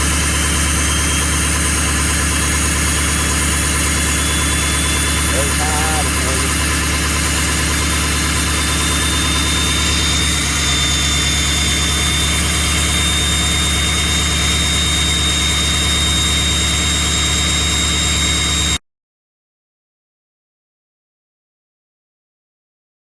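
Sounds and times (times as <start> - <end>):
engine idling: 0.0 - 15.9.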